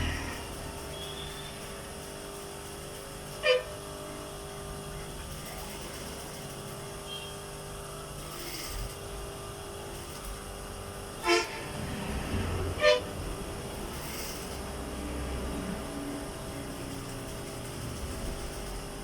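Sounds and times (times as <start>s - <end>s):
sewing machine motor hum: 0.0s - 19.0s
horn-like toots: 3.4s - 3.8s, 11.2s - 13.4s.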